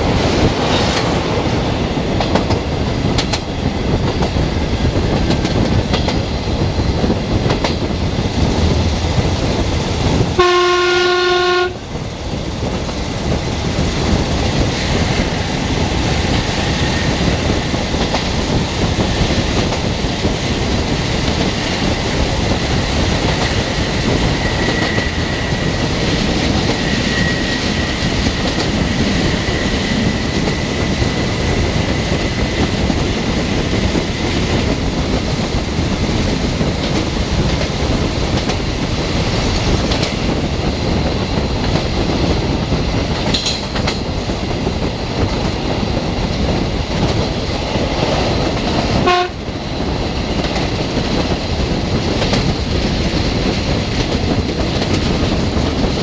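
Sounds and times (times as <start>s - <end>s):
rushing air: 0.0s - 10.8s, 11.6s - 56.0s
train wheels rumbling on rail: 0.0s - 56.0s
train horn blast: 10.4s - 11.8s, 49.0s - 49.4s.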